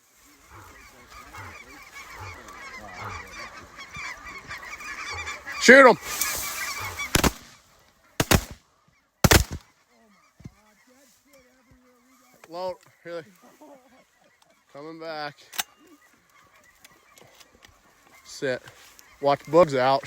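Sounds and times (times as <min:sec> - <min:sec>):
geese calling: 0:00.0 - 0:20.0
shotgun blasts: 0:07.0 - 0:07.5, 0:08.2 - 0:08.6, 0:09.2 - 0:09.6.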